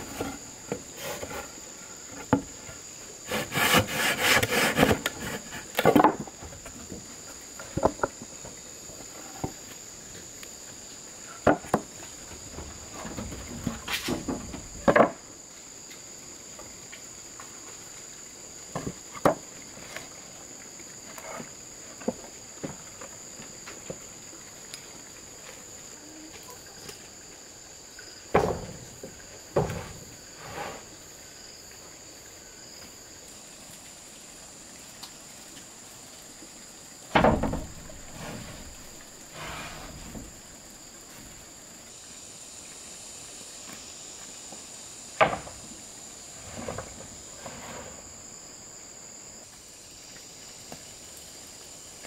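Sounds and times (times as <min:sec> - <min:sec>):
wood knocks and thuds: 0:02.1 - 0:02.6, 0:03.3 - 0:09.6, 0:11.4 - 0:15.3, 0:18.7 - 0:19.5, 0:28.3 - 0:30.2, 0:37.1 - 0:40.4, 0:45.2 - 0:45.8, 0:46.4 - 0:48.0
insect buzzing: 0:37.0 - 0:51.0.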